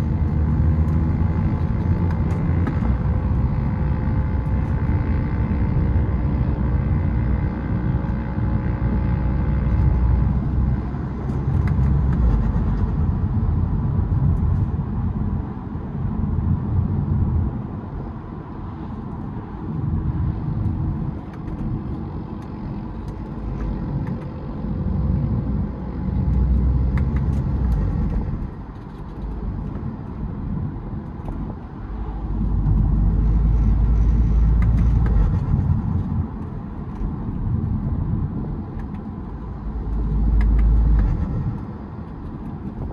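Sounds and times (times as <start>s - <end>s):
diesel car engine rumble: 0.0s - 42.9s.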